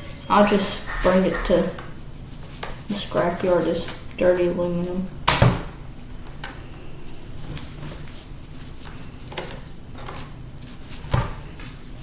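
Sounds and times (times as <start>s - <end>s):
low steady hum: 0.0s - 2.5s.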